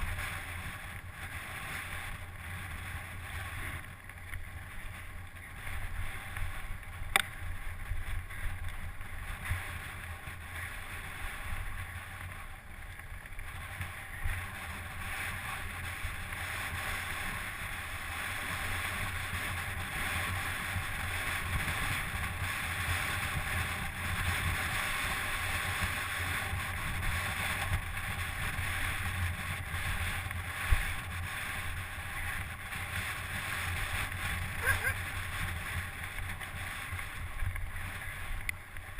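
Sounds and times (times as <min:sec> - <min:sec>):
wind rushing on microphone: 0:00.0 - 0:38.9.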